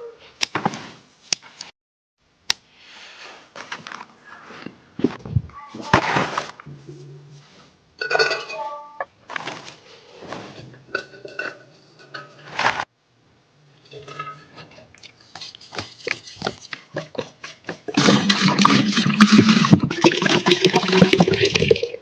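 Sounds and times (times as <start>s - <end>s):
dishes and utensils clinking: 8.0s - 8.7s, 10.8s - 12.5s, 13.8s - 18.8s
running water: 17.2s - 22.0s.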